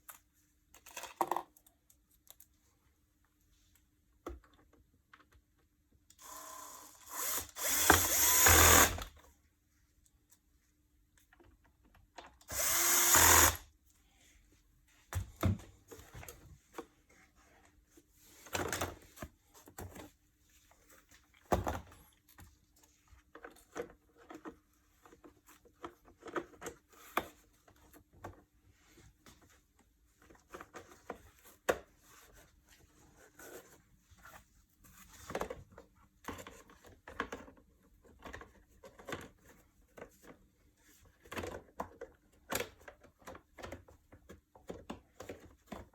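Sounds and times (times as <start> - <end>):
vacuum motor whirring: 6.2 - 9.1, 12.5 - 13.6.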